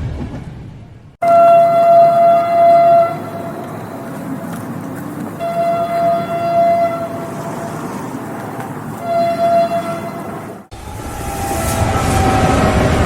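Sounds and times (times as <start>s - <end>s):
passing train rumble: 0.0s - 13.0s
train horn blasts: 1.2s - 3.6s, 5.4s - 7.6s, 9.0s - 13.0s.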